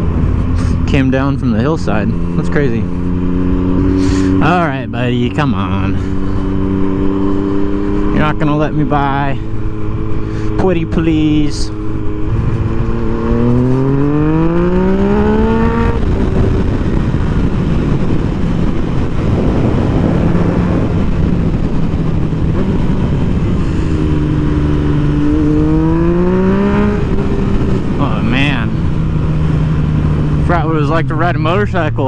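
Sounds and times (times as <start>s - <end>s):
motorcycle engine accelerating: 0.0s - 32.0s
wind rushing over microphone: 0.0s - 32.0s.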